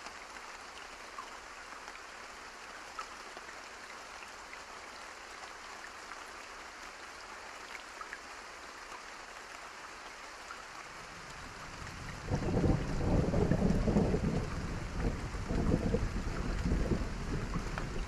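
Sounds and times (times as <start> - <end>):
soft rain: 0.0 - 18.0
thunder rumble: 12.0 - 18.0.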